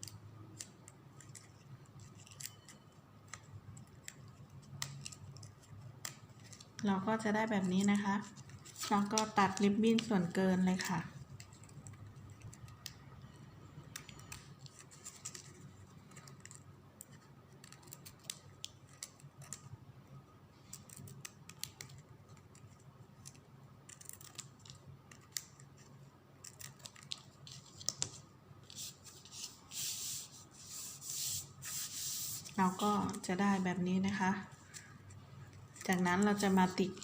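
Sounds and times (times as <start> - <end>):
ribbon rustling: 0.0 - 12.8, 20.5 - 37.0.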